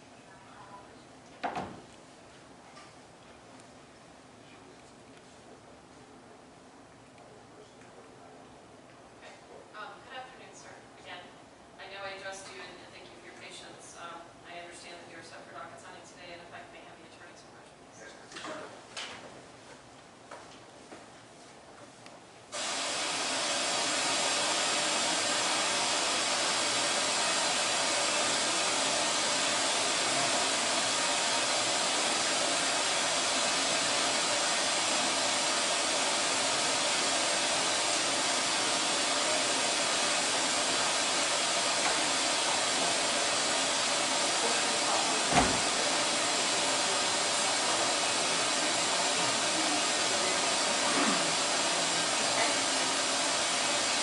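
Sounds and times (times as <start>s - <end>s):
rushing air hiss: 22.6s - 54.0s.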